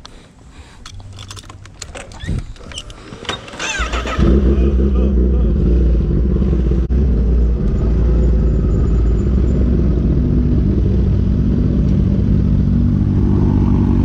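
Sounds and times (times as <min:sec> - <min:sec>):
motorcycle engine running: 0:03.7 - 0:14.0.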